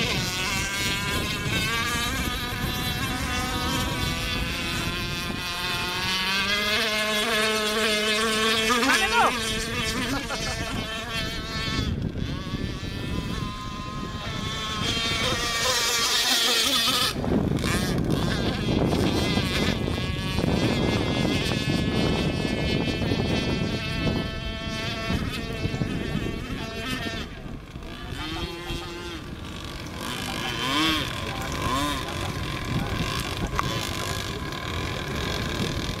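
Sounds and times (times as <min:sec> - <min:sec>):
model boat engine running: 0:00.0 - 0:36.0.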